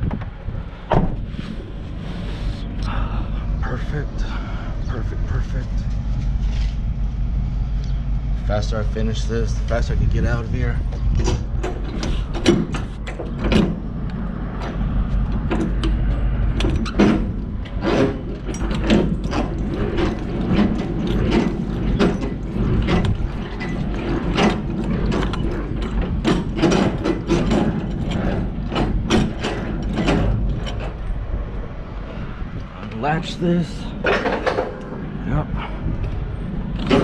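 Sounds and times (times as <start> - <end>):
low steady hum: 0.0 - 37.0
metallic clicks and clanks: 8.6 - 31.2, 34.0 - 35.0, 36.0 - 37.0.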